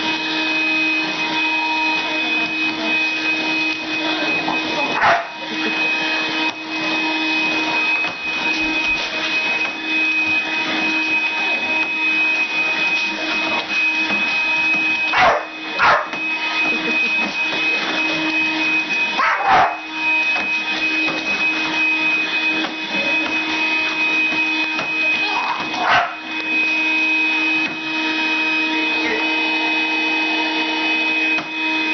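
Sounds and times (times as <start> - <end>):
vacuum cleaner whining: 0.0 - 31.9
dog barking: 5.0 - 5.4, 15.1 - 16.2, 19.2 - 19.9, 25.5 - 26.2.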